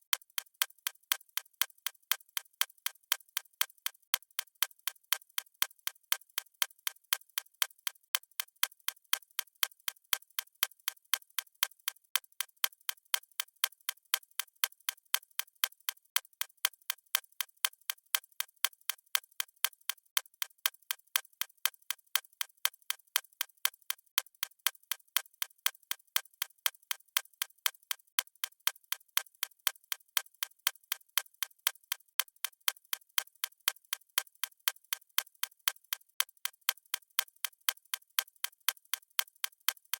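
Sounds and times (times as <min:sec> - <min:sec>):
clock ticking: 0:32.2 - 0:39.9.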